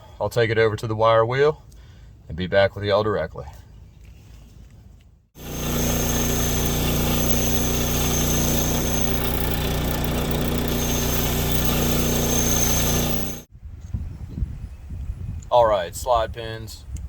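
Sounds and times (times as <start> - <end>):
thin high whine: 5.4 - 13.5
wire wheel scrubbing metal: 5.4 - 13.5.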